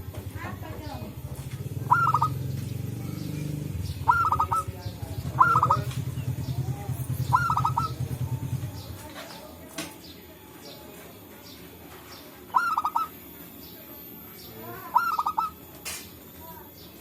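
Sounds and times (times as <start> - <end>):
low pulsing hum: 0.0 - 9.0
doves cooing: 0.7 - 9.3, 12.4 - 15.7.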